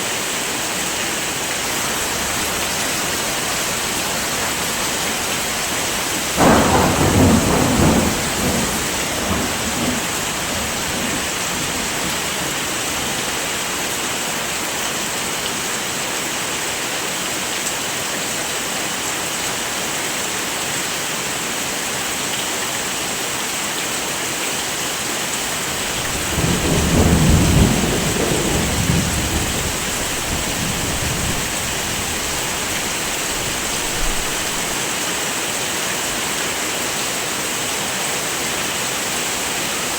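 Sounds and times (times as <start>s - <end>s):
heavy rain falling: 0.0s - 39.9s
low rolls of thunder: 2.0s - 13.0s, 25.7s - 34.8s.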